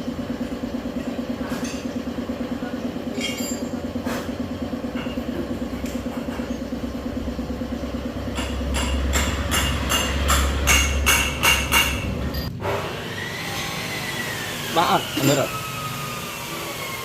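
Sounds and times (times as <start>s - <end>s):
scooter engine running: 0.0s - 17.0s
rapid sharp knocks: 8.3s - 12.1s.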